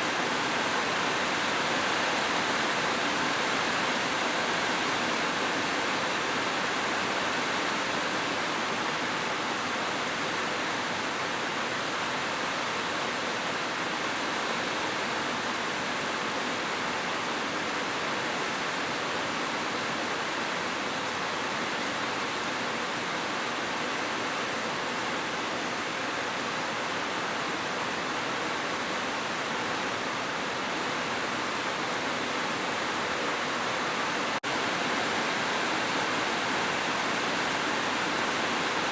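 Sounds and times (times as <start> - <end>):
heavy rain falling: 32.3 - 38.9.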